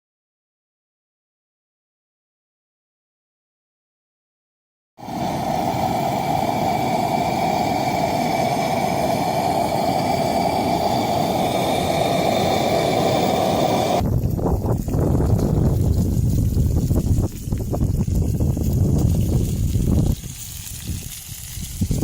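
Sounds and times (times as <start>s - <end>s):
lantern burner roaring hiss: 5.0s - 14.1s
wind rumble on microphone: 5.0s - 22.0s.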